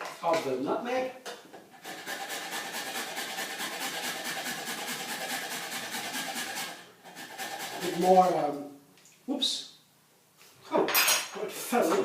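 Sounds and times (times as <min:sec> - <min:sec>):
nutmeg rasping on a grater: 0:01.7 - 0:08.4.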